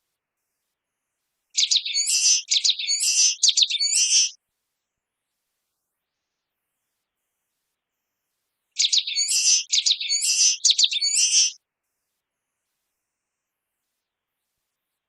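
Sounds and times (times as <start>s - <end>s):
small bird singing: 1.6s - 4.4s, 8.8s - 11.6s.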